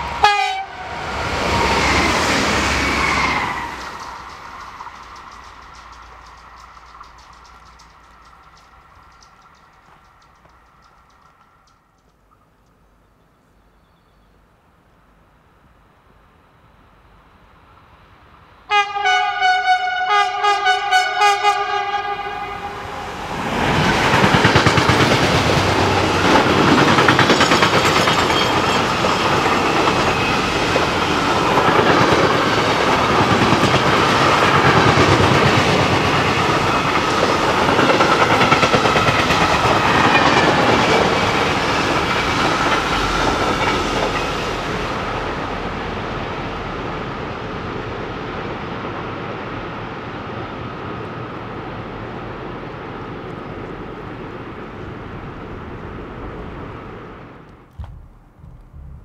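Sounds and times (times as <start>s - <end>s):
freight train horn: 0.0s - 3.6s, 18.7s - 23.4s
train wheels rumbling and clattering: 0.9s - 12.6s, 22.6s - 52.2s.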